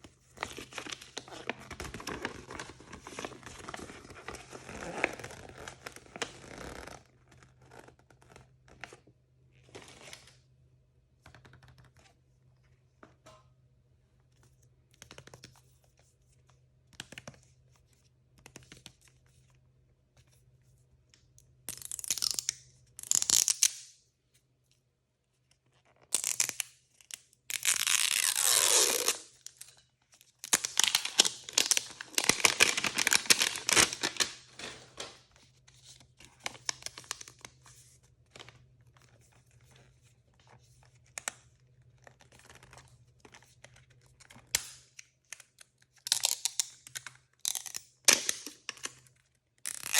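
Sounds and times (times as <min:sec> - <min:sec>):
plastic packaging tearing: 0:27.5 - 0:29.4, 0:30.4 - 0:35.2
plastic crinkling: 0:30.4 - 0:37.6.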